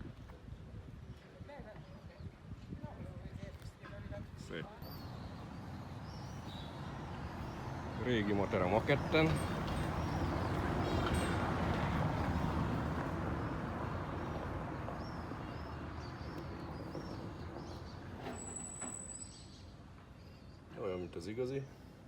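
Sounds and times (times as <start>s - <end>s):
small birds chirping: 4.6s - 21.7s
motor vehicle rumble: 4.8s - 19.2s.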